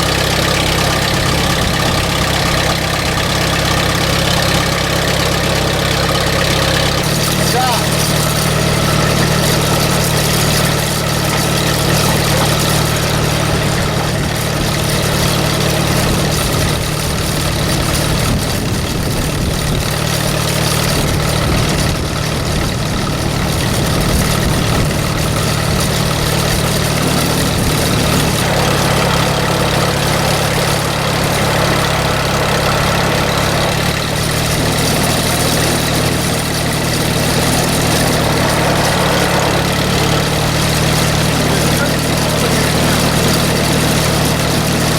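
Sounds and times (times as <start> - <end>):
tractor engine idling: 0.0 - 44.9.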